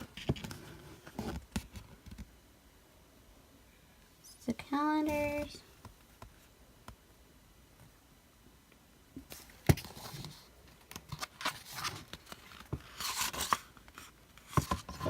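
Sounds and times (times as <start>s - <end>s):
packaging rustling and crinkling: 9.3s - 15.0s.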